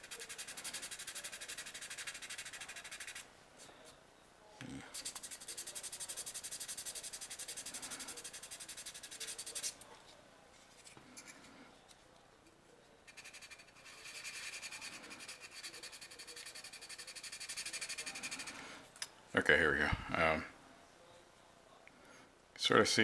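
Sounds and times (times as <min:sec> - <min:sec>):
sandpaper rubbing on plastic: 0:00.0 - 0:03.2, 0:04.9 - 0:09.8, 0:13.1 - 0:18.4.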